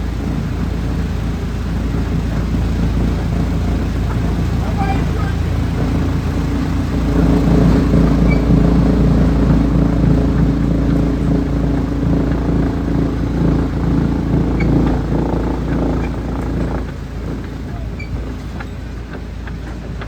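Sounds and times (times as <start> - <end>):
wood chipper engine running: 0.0 - 20.0
light clatter: 13.4 - 20.0.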